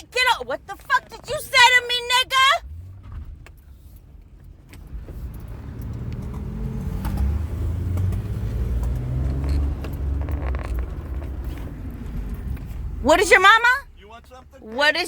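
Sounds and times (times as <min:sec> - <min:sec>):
car engine and road rumble: 0:00.0 - 0:15.0
light clicks and rattles: 0:08.0 - 0:12.9.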